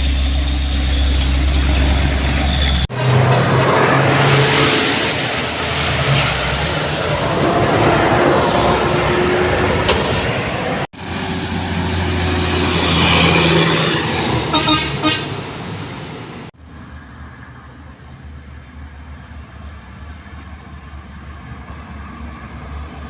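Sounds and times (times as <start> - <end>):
heavy trucks engines labouring: 0.0 - 23.0
truck horn toots: 14.4 - 15.4.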